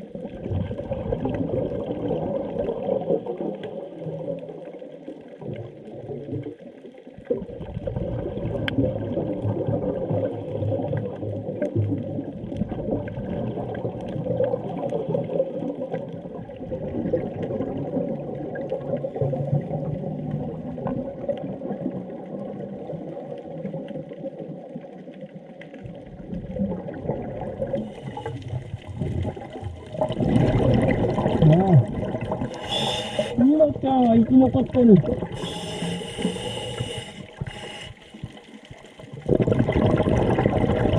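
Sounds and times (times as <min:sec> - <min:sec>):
underwater air bubbling: 0:00.0 - 0:40.9.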